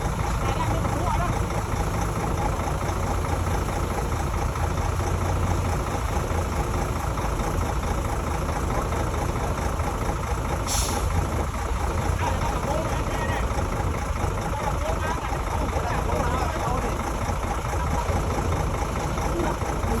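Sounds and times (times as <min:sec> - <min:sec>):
heavy diesel machinery humming: 0:00.0 - 0:20.0
short hiss: 0:10.7 - 0:11.1.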